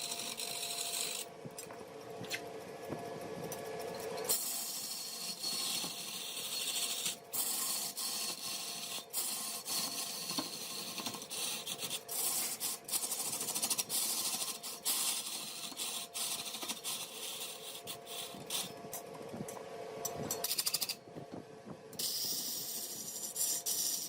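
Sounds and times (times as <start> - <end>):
wood rasping on a lathe: 4.6 - 18.5.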